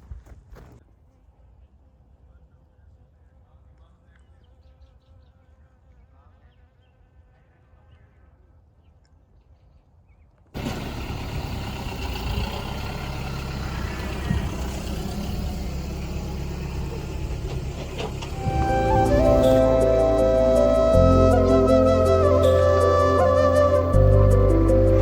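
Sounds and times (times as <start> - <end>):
road and wind noise: 10.6 - 25.0
vehicle engine hum: 10.6 - 25.0.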